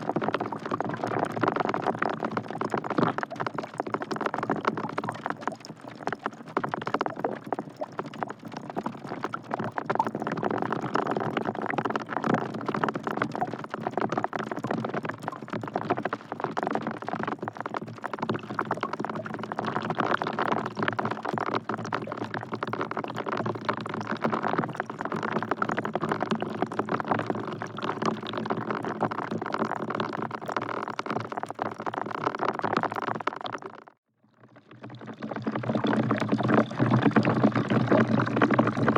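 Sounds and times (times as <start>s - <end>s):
rain falling into a bucket: 0.0s - 34.0s, 34.6s - 38.9s.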